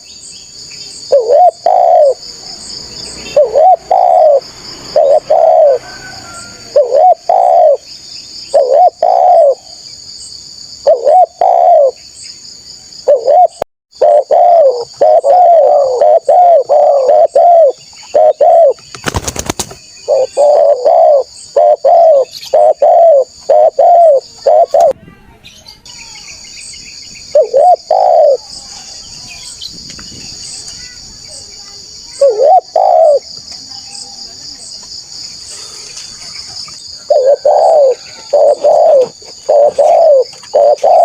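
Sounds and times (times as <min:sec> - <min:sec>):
dove cooing: 0:01.1 - 0:02.3, 0:03.2 - 0:07.9, 0:08.5 - 0:09.8, 0:10.8 - 0:12.0, 0:13.0 - 0:18.8, 0:20.0 - 0:25.0, 0:27.3 - 0:28.5, 0:32.2 - 0:33.3, 0:37.0 - 0:41.0.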